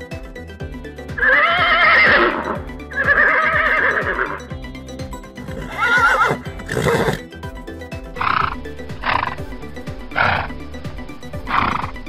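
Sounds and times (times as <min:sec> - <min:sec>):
background music with steady beat: 0:00.0 - 0:12.0
horse whinnying: 0:01.2 - 0:04.4, 0:05.4 - 0:07.3, 0:10.2 - 0:10.5.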